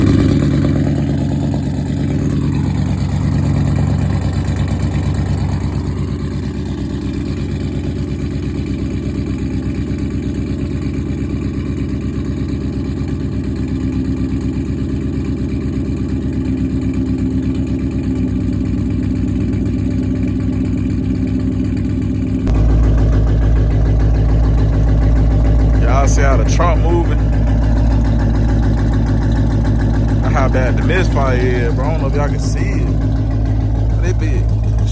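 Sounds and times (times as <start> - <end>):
car engine idling with misfire: 0.0 - 34.9.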